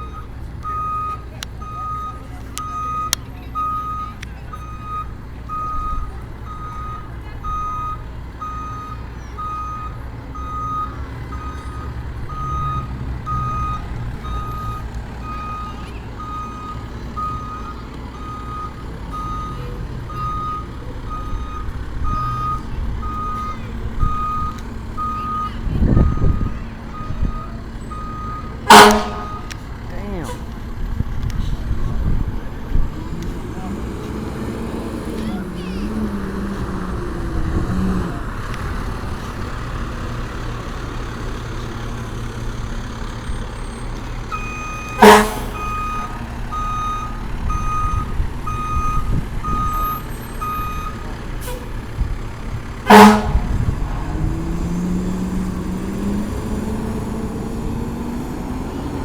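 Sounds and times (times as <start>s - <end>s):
reversing alarm beeping: 0.0s - 29.6s, 43.2s - 51.0s
diesel engine running: 0.0s - 59.0s.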